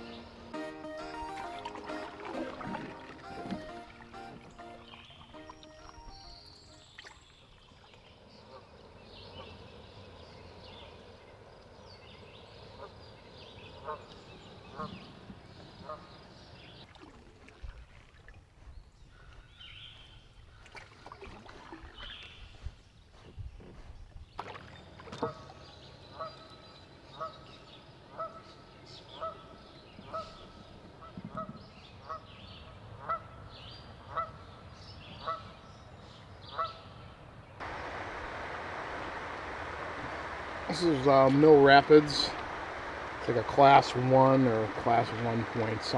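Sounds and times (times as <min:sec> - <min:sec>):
steady rushing noise: 0:37.6 - 0:45.9.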